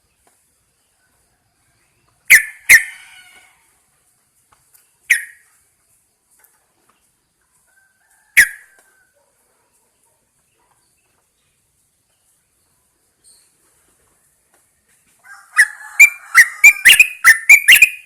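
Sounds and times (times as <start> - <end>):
bulbul sharp calls: 2.3 - 3.6, 5.0 - 5.5, 8.4 - 8.8, 15.6 - 18.0
faint bird chirps: 4.7 - 5.7, 8.1 - 14.2, 15.6 - 18.0.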